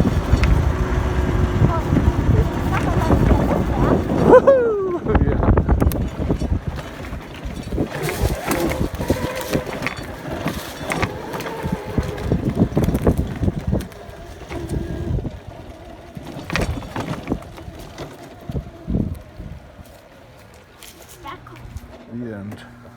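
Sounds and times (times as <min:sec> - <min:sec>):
wind buffeting on microphone: 0:00.0 - 0:22.0
knocks and rattles from bumps: 0:00.0 - 0:22.7
electric motor whine: 0:07.7 - 0:22.9.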